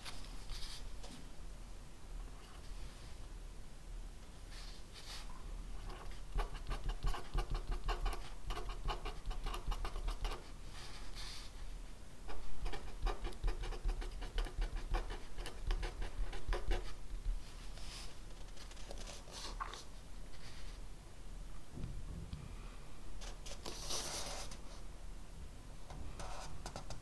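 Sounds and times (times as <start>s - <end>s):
pen scratching on paper: 5.8s - 10.5s, 12.3s - 17.0s.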